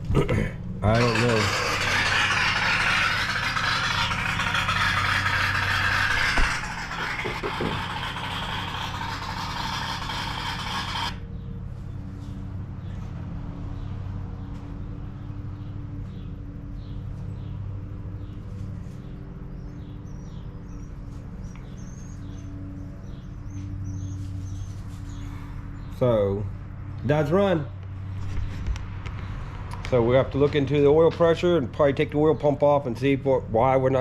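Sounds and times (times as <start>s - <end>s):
birds chirping: 13.7s - 26.2s.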